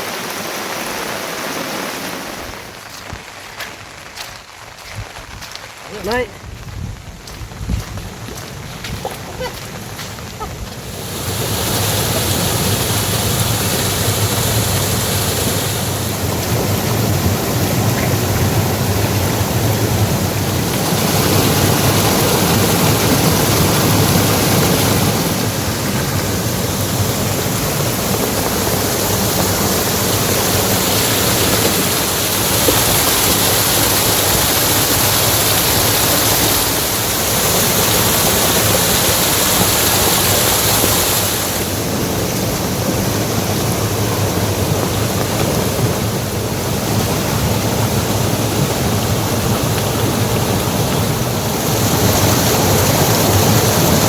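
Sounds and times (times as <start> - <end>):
rushing water: 0.0 - 54.0.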